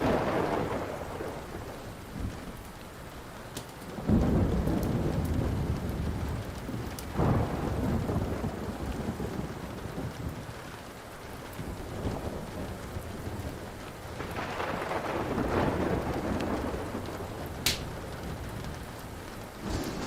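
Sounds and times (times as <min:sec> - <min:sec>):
thunder rumbling: 0:00.0 - 0:02.9, 0:03.9 - 0:20.0
steady rain: 0:00.0 - 0:20.0
wood fire crackling: 0:00.0 - 0:20.0
sharp snap: 0:17.6 - 0:17.9.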